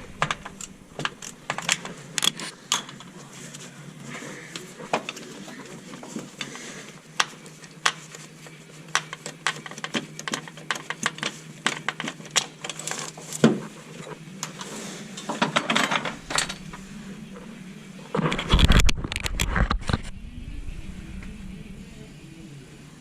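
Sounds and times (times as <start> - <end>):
steady low hum: 0.0 - 8.9, 13.6 - 23.0
metal tools clinking: 15.6 - 16.9.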